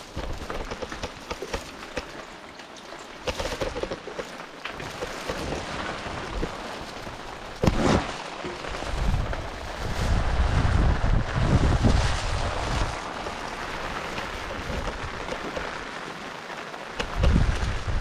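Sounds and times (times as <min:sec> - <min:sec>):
raindrops ticking: 0:00.0 - 0:09.8, 0:13.0 - 0:18.0
heavy rain: 0:00.0 - 0:18.0
wind gusts buffeting microphone: 0:08.7 - 0:15.9, 0:17.0 - 0:18.0.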